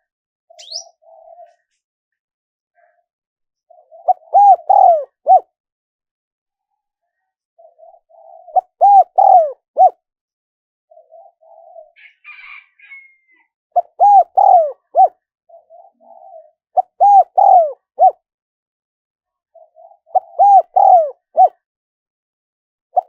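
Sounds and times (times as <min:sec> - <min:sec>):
dove cooing: 0:00.5 - 0:01.7, 0:03.7 - 0:05.5, 0:07.6 - 0:10.0, 0:10.9 - 0:13.2, 0:13.8 - 0:18.2, 0:19.5 - 0:21.6
faint chirp: 0:00.5 - 0:01.8.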